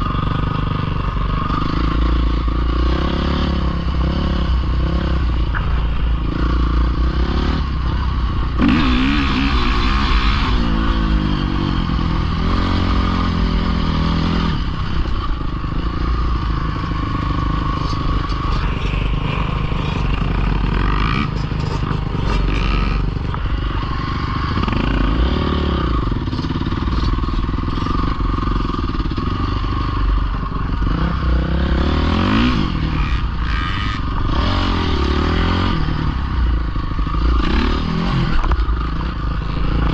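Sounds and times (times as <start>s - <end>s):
dirt bike engine revving: 0.0s - 39.9s
clatter: 11.8s - 34.3s.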